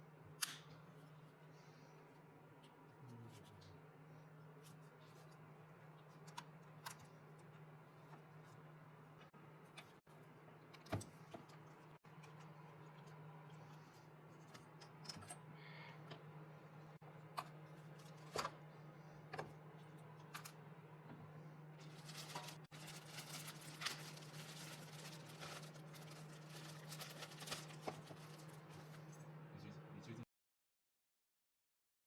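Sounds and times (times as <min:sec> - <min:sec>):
scraping and rustling: 0:21.8 - 0:29.1.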